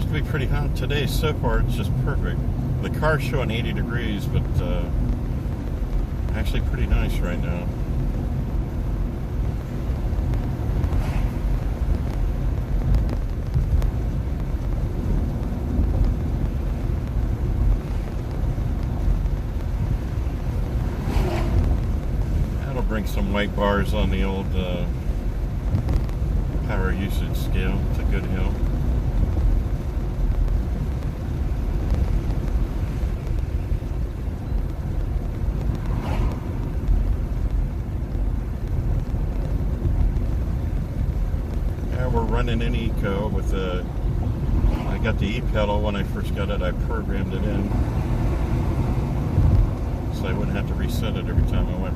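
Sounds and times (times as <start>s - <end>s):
road and tyre rumble: 0.0s - 51.9s
wind noise: 0.0s - 51.9s
brief swish: 10.9s - 11.5s, 20.9s - 21.8s, 35.8s - 36.7s.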